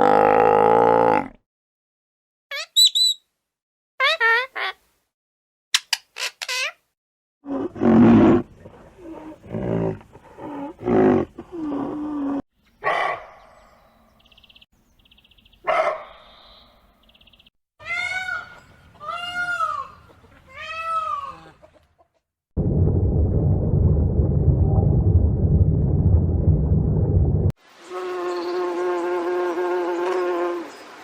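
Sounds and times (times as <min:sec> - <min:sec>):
animal growls or roars: 0:00.0 - 0:01.4, 0:07.4 - 0:12.4.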